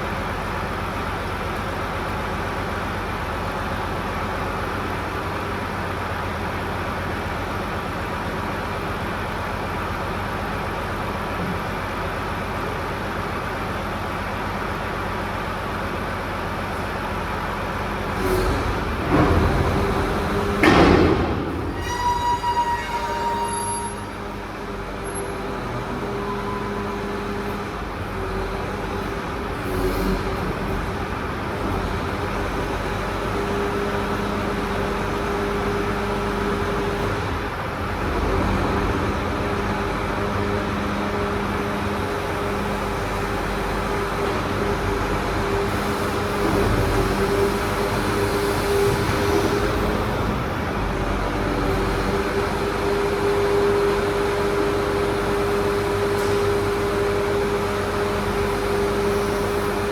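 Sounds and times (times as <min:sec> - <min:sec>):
hydraulics humming: 0:16.6 - 0:59.9
truck engine running: 0:24.2 - 0:59.9.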